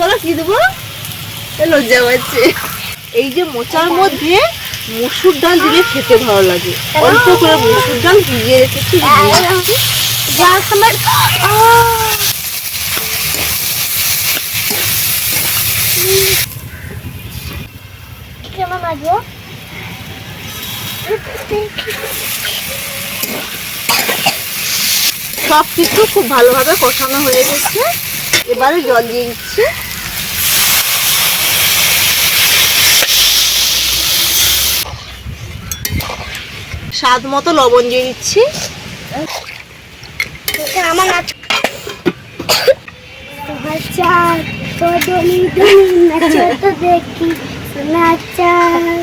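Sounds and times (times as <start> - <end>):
curry sizzling in a pan: 0.0 - 17.3, 20.4 - 34.9.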